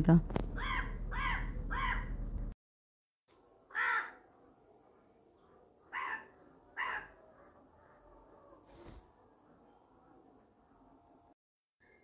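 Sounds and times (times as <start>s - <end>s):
bird calling: 0.6s - 2.2s, 5.9s - 7.2s.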